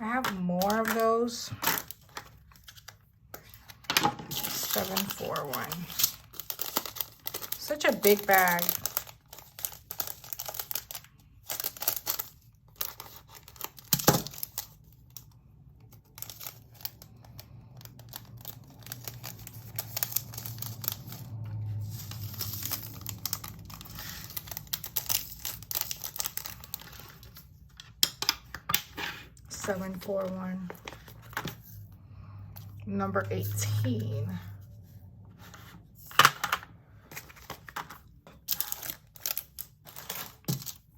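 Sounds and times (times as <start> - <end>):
plastic bag crinkling and tearing: 0.2 - 27.7, 37.2 - 40.9.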